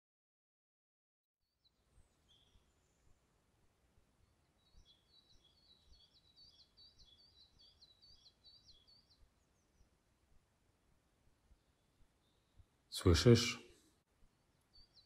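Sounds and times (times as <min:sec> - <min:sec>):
small bird singing: 0:01.5 - 0:03.4, 0:04.1 - 0:10.1, 0:11.5 - 0:13.6, 0:14.3 - 0:15.0.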